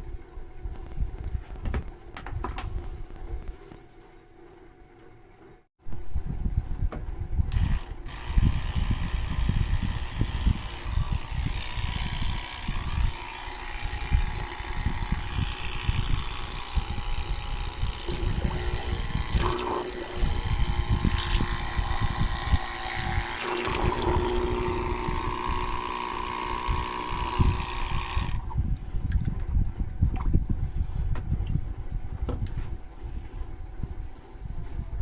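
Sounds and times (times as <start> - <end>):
motor whine: 5.9 - 30.0
water pump spraying: 7.5 - 28.5.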